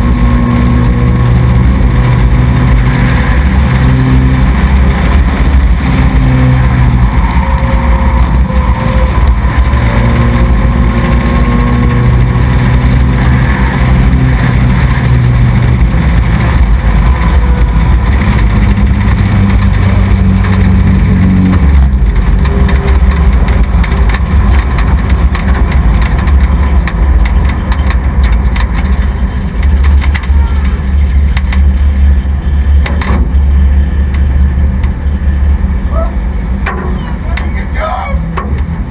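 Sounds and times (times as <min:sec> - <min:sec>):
race truck engine revving: 0:00.0 - 0:38.9.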